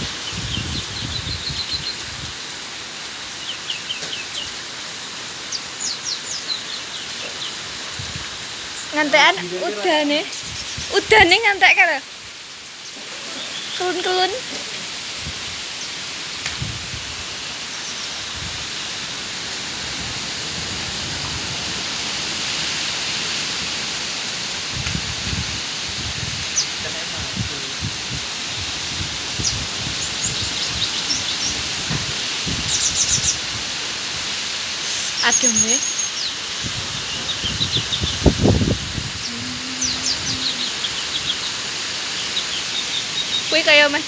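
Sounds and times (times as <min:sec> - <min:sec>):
rain hiss: 0:00.0 - 0:44.0
small bird chirping: 0:32.5 - 0:33.5, 0:34.8 - 0:43.9.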